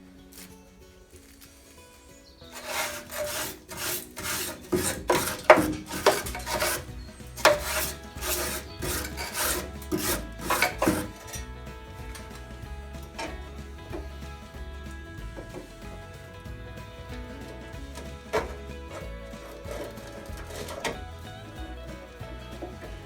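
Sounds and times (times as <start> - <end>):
quiet background music: 0.0 - 23.0
hand rasping scrapes on metal: 2.4 - 12.4, 17.3 - 23.0.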